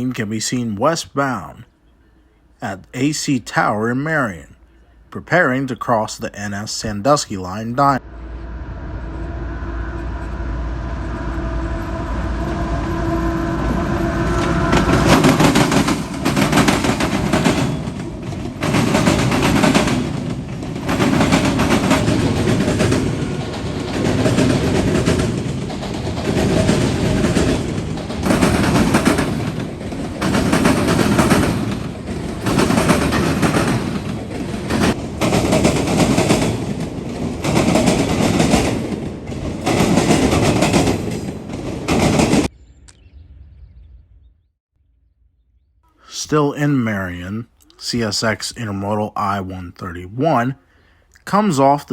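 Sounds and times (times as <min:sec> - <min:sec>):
diesel locomotives rumbling: 0:00.0 - 0:43.4
train wheels clattering over crossing: 0:13.0 - 0:42.5.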